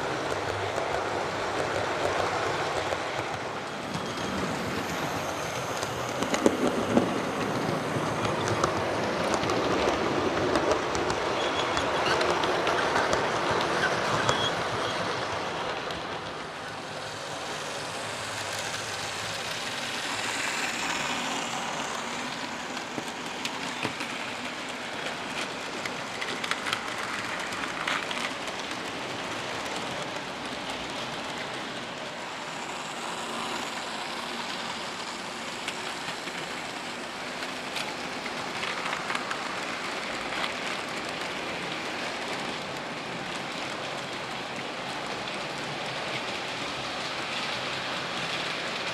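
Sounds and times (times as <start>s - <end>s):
model train motors hissing: 16.9s - 24.2s, 32.2s - 37.4s.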